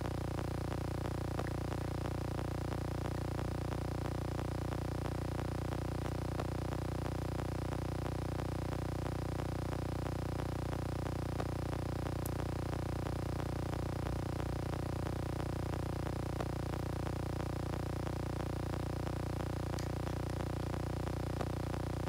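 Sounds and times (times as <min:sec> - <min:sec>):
faint ticks: 0:19.7 - 0:20.4.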